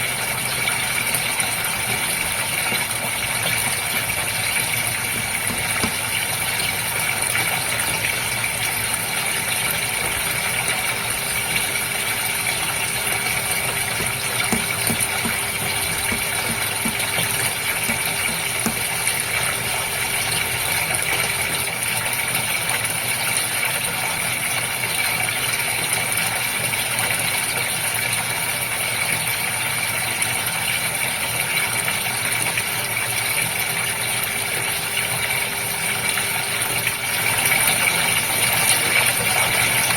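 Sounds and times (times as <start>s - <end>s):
aquarium water bubbling: 0.0s - 39.9s
mechanical hum: 0.0s - 39.9s.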